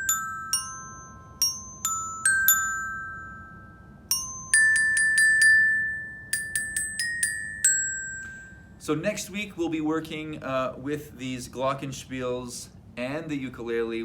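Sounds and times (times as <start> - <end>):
glockenspiel melody: 0.0 - 8.8.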